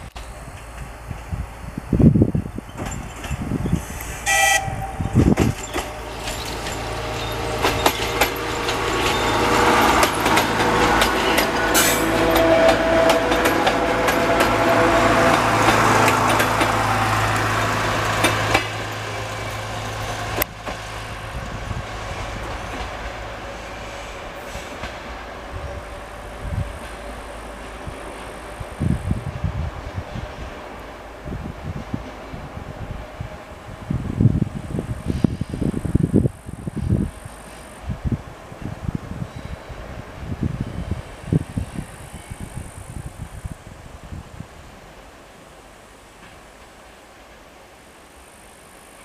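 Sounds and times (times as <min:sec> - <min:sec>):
diesel train hum: 0:00.0 - 0:49.0
train horn toot: 0:04.2 - 0:17.2
wheels clicking over rail joints: 0:05.2 - 0:23.1.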